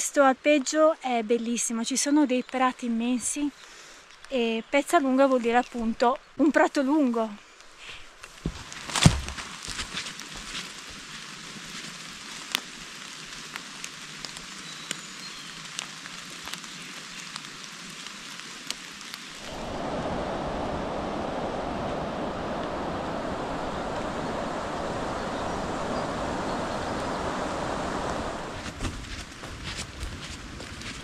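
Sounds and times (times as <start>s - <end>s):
rain falling in woods: 0.1s - 31.0s.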